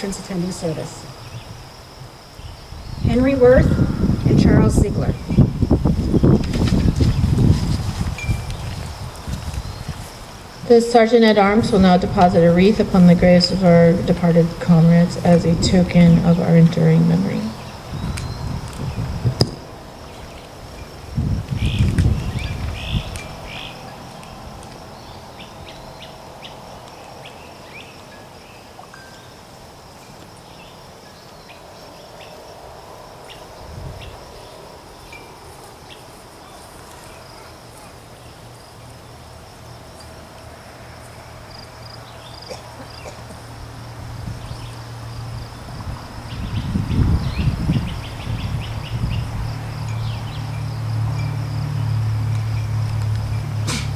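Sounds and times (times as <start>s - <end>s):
low rumbles: 0.0s - 25.4s
insects trilling: 0.0s - 53.9s.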